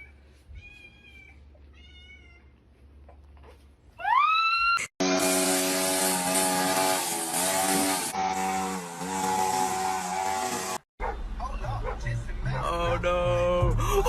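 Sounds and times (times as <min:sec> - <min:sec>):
cat meowing: 0:00.0 - 0:02.5.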